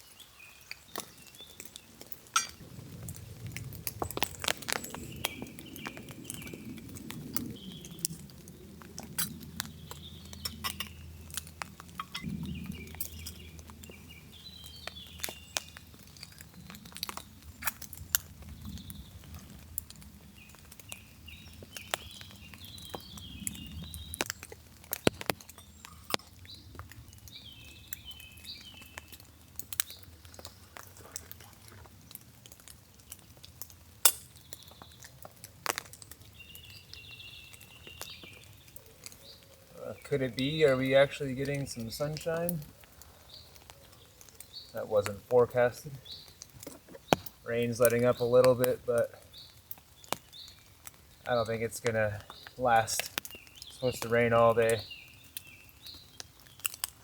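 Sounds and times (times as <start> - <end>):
birds chirping: 0.0 - 57.0
rain pattering on a tarp: 0.0 - 57.0.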